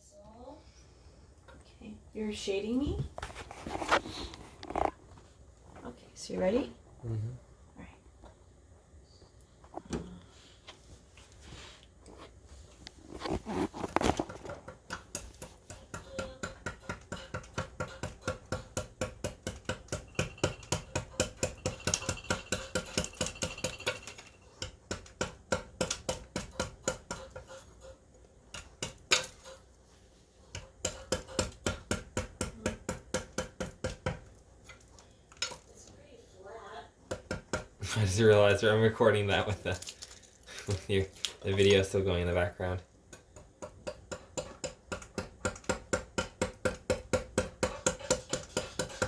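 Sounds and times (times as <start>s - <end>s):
chisel tapping on wood: 30.6s - 34.3s, 43.1s - 49.0s.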